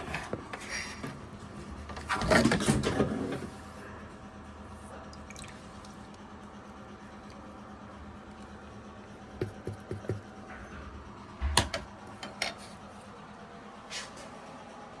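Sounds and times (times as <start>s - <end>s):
hard objects knocking and clinking: 9.4s - 10.2s.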